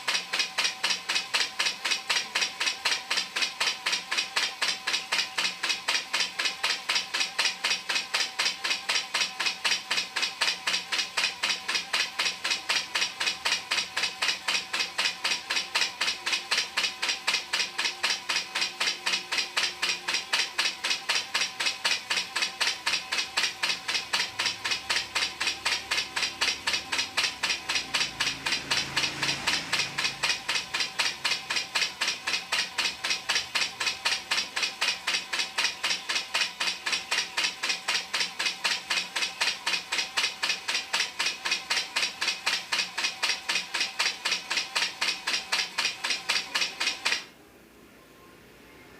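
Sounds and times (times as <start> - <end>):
coil-winding machine ticking: 0.0 - 47.3
faint steady hum: 47.3 - 48.9.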